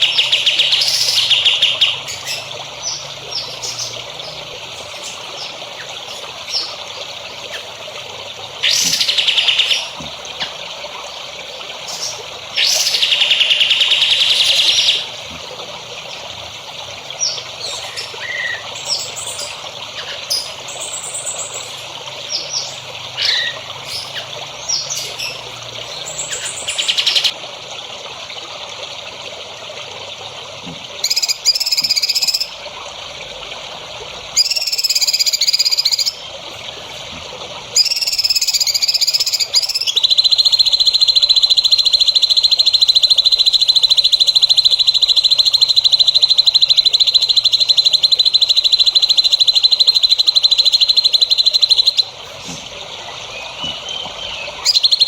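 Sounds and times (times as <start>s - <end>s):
songbirds singing: 0.0s - 27.4s, 31.0s - 32.7s, 34.2s - 55.0s
water trickling: 0.0s - 55.0s
bird buzzy trill: 34.4s - 36.2s, 37.8s - 52.4s.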